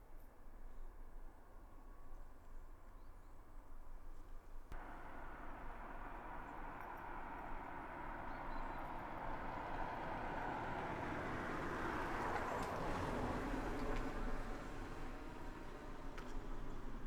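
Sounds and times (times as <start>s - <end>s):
distant road vehicle passing: 4.8s - 17.0s.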